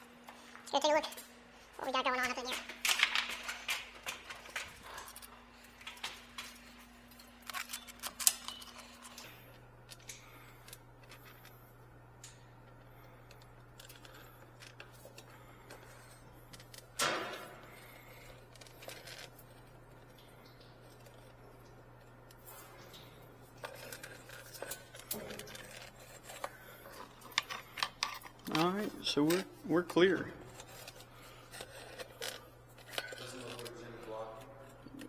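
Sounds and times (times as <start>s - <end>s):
faint steady hum: 0.0s - 35.0s
tools and parts clicking: 2.5s - 9.3s, 23.6s - 33.7s.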